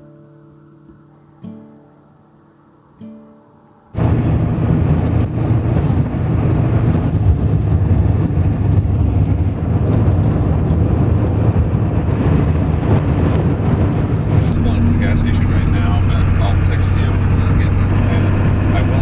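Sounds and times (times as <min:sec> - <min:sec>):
vehicle engine and road rumble: 0:04.0 - 0:19.0.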